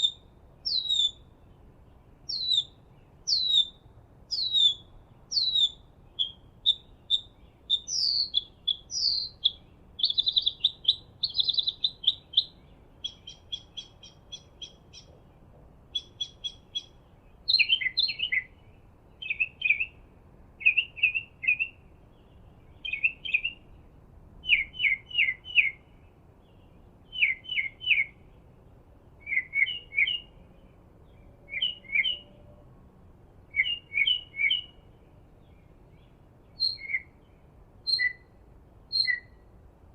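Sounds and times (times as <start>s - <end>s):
sharp bird chirps: 0.0s - 1.2s, 2.3s - 15.2s, 15.9s - 18.6s, 36.6s - 37.2s, 37.8s - 38.3s, 38.9s - 39.4s
songbirds calling: 0.0s - 39.9s
ticking bird calls: 3.3s - 18.5s, 38.9s - 39.3s
downward whistled bird notes: 37.9s - 38.3s, 38.9s - 39.4s.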